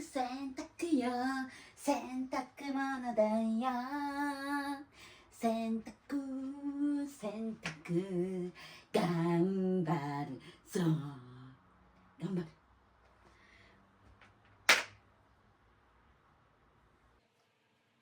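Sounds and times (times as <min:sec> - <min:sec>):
woman singing: 0:00.0 - 0:11.6.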